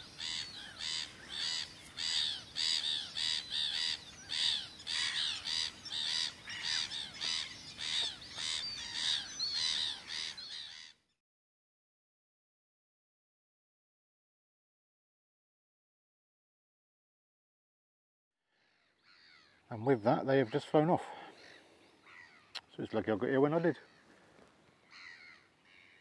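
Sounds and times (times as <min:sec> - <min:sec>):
bird calling: 0:00.0 - 0:11.1, 0:18.5 - 0:26.0.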